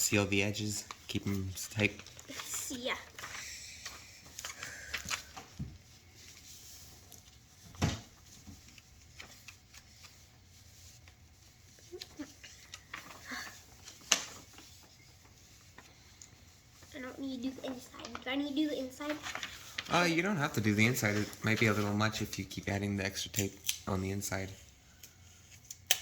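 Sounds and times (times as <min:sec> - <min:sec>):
paper rustling and crinkling: 0:00.0 - 0:26.0.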